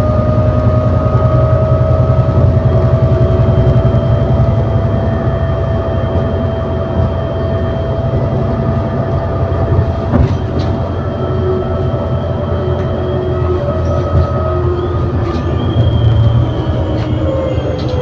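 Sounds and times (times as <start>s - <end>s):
bus engine rumble: 0.0s - 18.0s
steady high whine: 0.0s - 18.0s
clunk: 9.6s - 11.1s.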